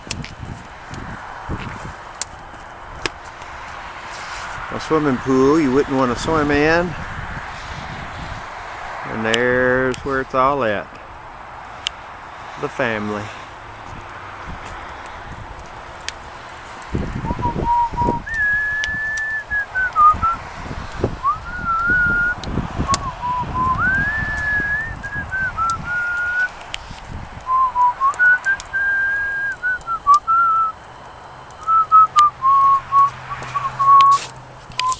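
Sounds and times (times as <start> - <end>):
person whistling a slow tune: 17.2 - 20.4, 21.2 - 26.5, 27.5 - 30.8, 31.6 - 34.2.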